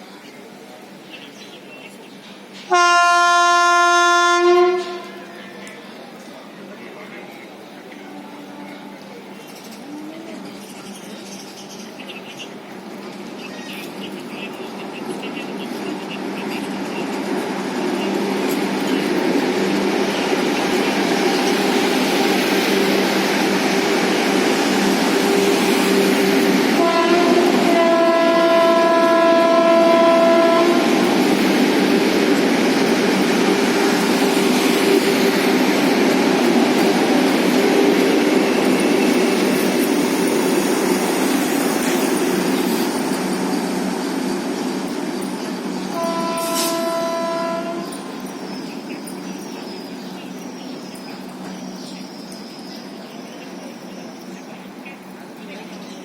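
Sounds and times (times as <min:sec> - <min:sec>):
electric train passing at speed: 0:00.0 - 0:56.0
train horn: 0:02.7 - 0:05.5, 0:26.7 - 0:31.2, 0:45.9 - 0:48.1.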